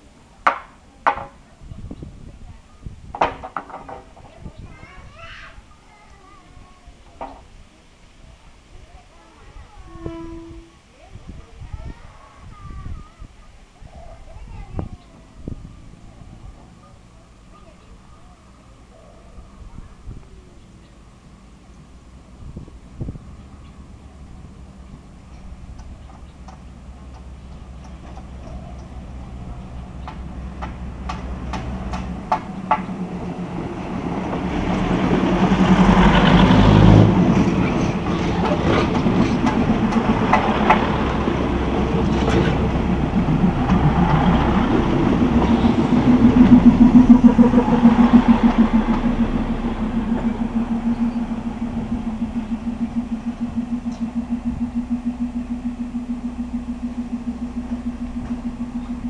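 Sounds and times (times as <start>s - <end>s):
train running past: 3.9s - 13.4s, 14.2s - 59.0s
diesel engine pulsing hum: 15.3s - 59.0s.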